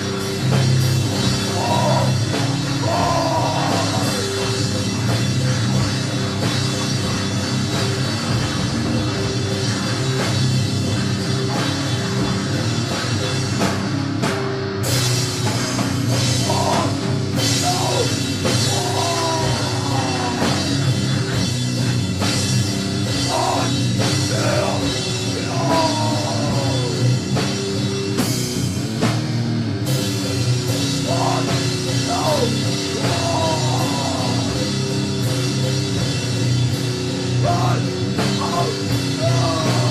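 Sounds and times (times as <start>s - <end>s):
distorted guitars and drums: 0.0s - 39.9s.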